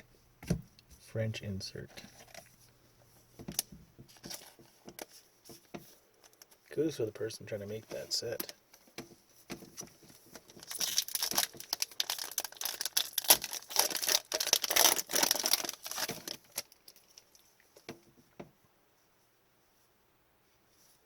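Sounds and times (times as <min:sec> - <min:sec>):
foil wrapper tearing and crinkling: 0:10.4 - 0:17.4.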